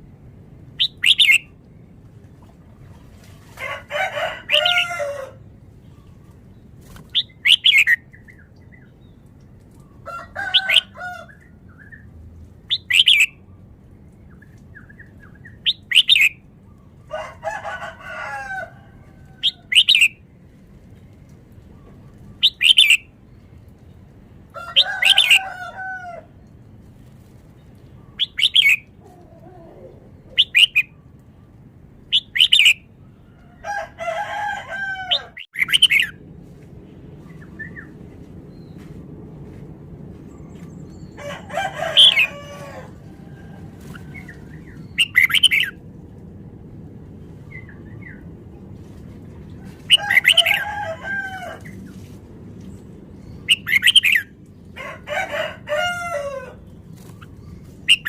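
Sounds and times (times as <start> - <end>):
bird warbling: 0.8 - 1.5, 35.1 - 36.1, 43.9 - 45.8.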